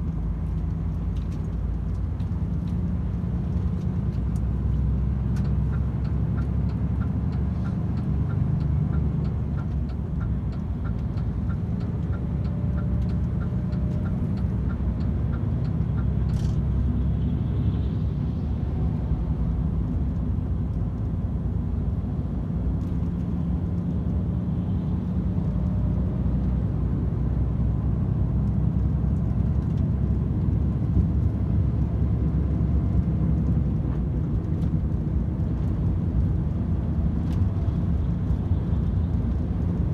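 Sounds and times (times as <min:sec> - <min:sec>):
light regular ticking: 0:05.3 - 0:16.4.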